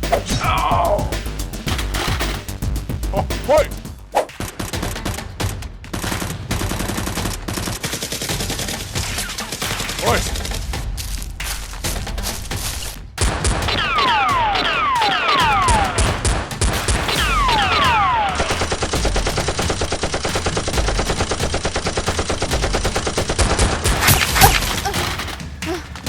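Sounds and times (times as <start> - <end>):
gunshots: 3.2 - 25.5
automatic gunfire: 4.4 - 10.5, 13.2 - 25.4.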